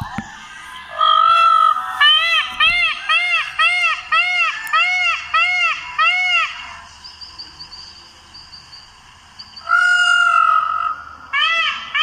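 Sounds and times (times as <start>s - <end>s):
peacock calling: 0.0s - 8.7s, 9.4s - 12.0s
faint high chirps: 5.8s - 9.7s.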